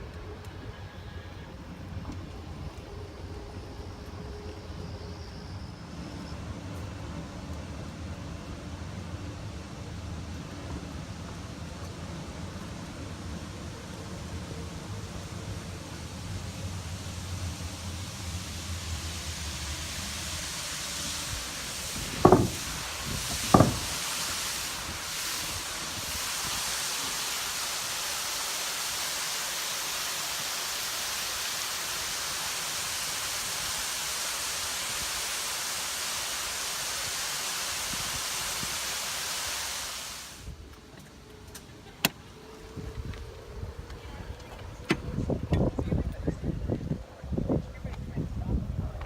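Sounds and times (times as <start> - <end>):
waterfall rushing: 13.4 - 40.5
sharp knocks: 22.2 - 22.7, 23.5 - 24.0.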